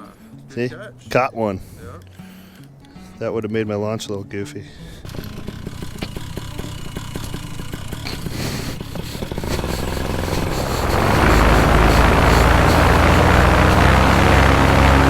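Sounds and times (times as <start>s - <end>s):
paramotor engine and propeller: 5.0s - 15.0s.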